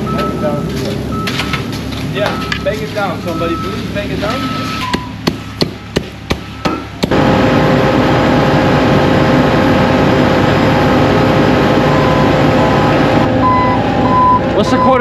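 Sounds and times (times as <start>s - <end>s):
heavy paving machinery running: 0.0s - 15.0s
sharp bangs on asphalt: 5.2s - 7.2s.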